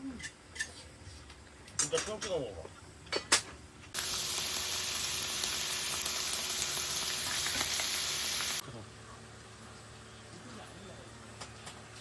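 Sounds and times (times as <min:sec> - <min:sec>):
meat sizzling in a pan: 0:04.0 - 0:08.6.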